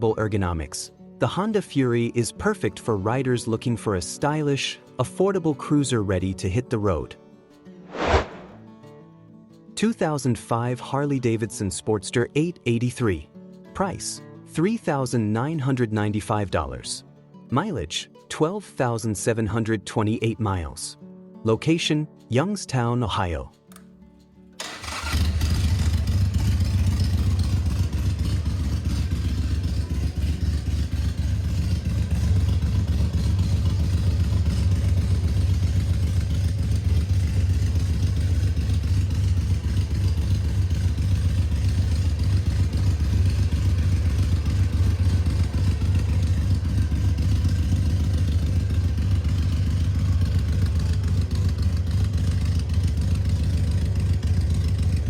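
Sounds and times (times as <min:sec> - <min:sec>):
motorcycle engine idling: 0:24.6 - 0:55.0.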